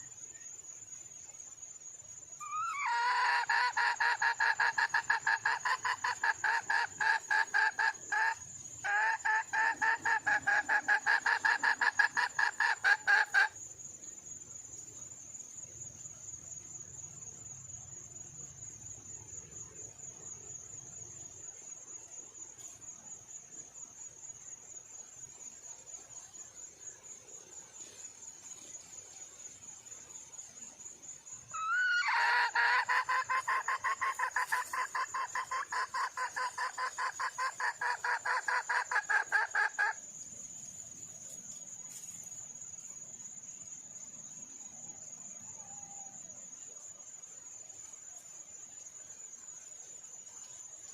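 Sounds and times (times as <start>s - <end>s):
hen clucking: 2.4s - 13.5s, 31.6s - 40.0s.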